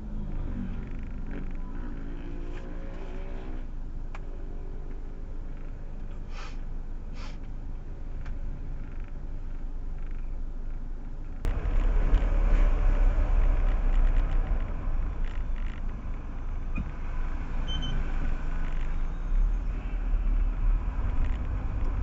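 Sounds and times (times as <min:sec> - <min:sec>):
car engine and road rumble: 0:00.0 - 0:22.0
short hisses: 0:06.3 - 0:07.4.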